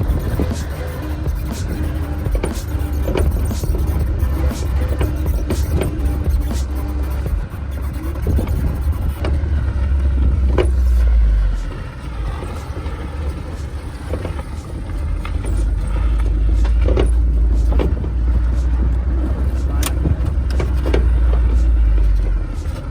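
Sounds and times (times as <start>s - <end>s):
vehicle engine rumbling: 0.0s - 22.9s.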